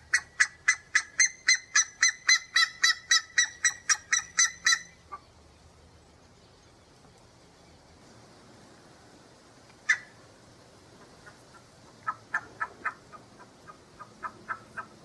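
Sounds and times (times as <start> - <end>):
bird calling rapidly: 0.0 - 5.4, 9.8 - 10.2, 11.2 - 15.0.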